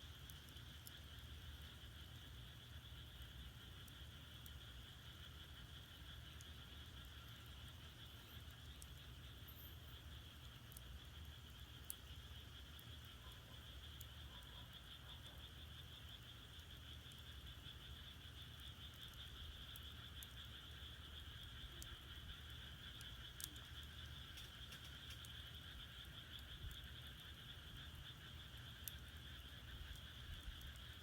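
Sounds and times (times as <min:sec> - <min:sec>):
frogs calling: 0:00.2 - 0:31.0
firewood crackling: 0:22.9 - 0:25.8.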